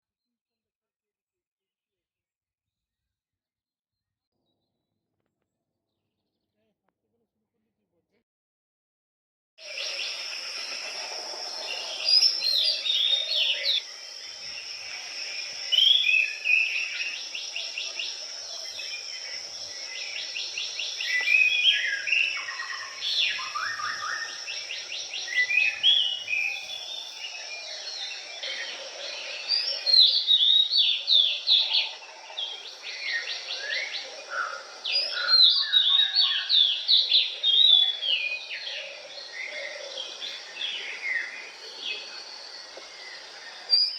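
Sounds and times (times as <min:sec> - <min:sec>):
songbirds singing: 0:09.6 - 0:43.9.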